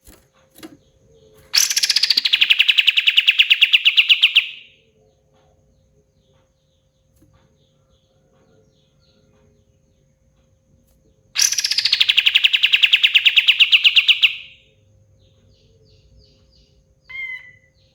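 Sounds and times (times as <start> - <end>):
songbird rapid trill: 0.0 - 4.9, 11.3 - 17.9.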